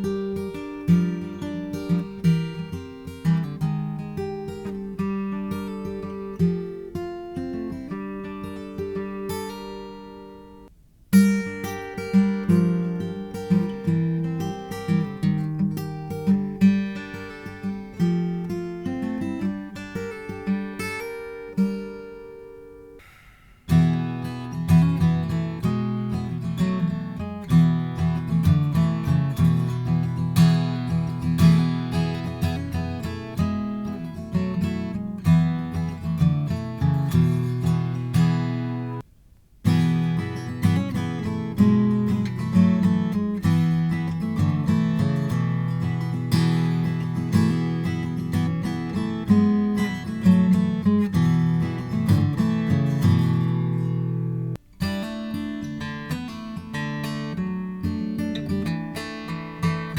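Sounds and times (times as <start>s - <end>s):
acoustic guitar playing: 0.0s - 59.9s.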